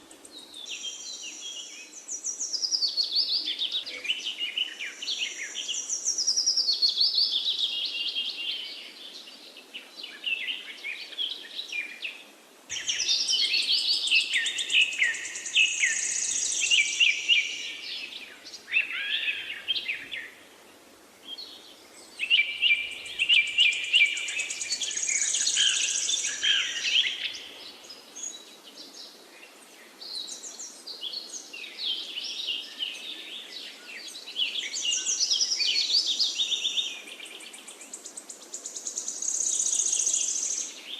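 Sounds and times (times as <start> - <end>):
birds singing and chirping: 0.0 - 20.4, 21.3 - 40.9
faint background hiss: 0.0 - 40.9.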